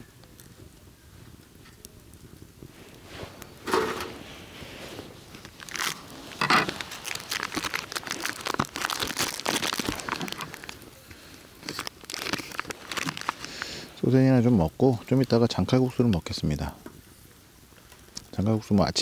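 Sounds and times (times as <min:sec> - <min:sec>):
plastic wrapping crinkling: 0:04.2 - 0:14.0.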